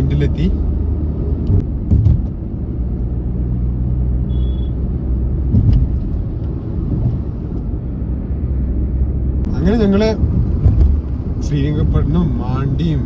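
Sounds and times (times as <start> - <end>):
car road and engine rumble: 0.0 - 13.0
high beep: 4.3 - 4.7.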